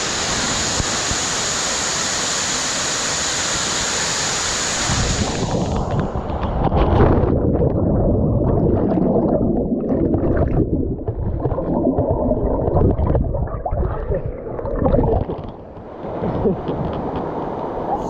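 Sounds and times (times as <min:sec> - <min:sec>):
water rushing and churning: 0:00.0 - 0:18.0
water splashes: 0:04.6 - 0:18.0.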